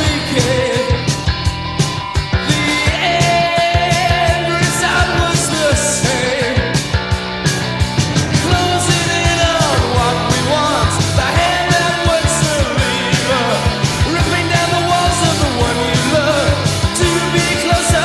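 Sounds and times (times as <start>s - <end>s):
bass and guitar: 0.0s - 18.0s
drumbeat: 0.0s - 18.0s
person singing: 2.4s - 6.9s, 8.3s - 18.0s.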